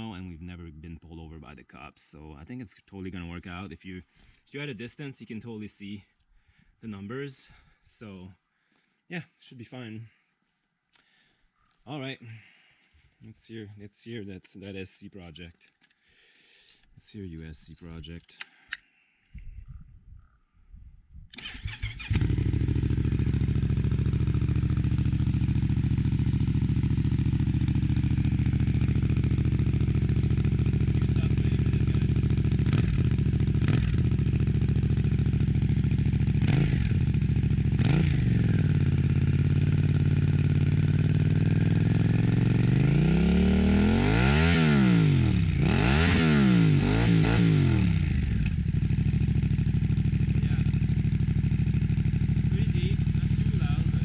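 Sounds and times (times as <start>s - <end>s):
motorcycle engine cranking: 21.3s - 25.2s
motorcycle engine revving: 21.4s - 54.0s
motorcycle engine idling: 21.7s - 44.1s, 46.8s - 54.0s.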